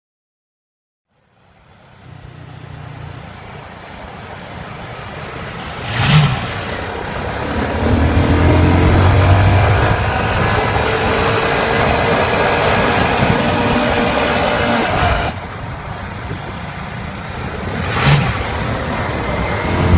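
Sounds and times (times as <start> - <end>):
minibike engine revving: 5.0 - 15.4, 17.1 - 19.9
loud whoosh: 5.5 - 15.4.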